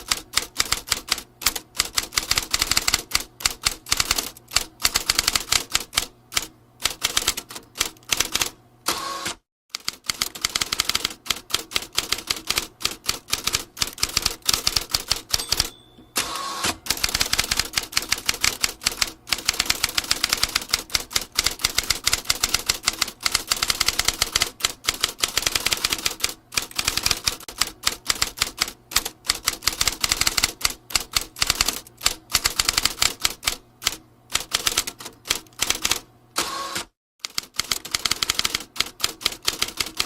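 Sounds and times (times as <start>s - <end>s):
typewriter key strikes: 13.1s - 24.5s.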